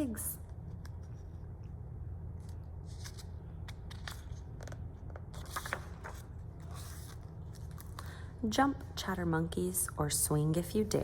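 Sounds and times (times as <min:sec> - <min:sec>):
steady low hum: 0:00.0 - 0:11.0
paper pages rustling: 0:02.4 - 0:08.2.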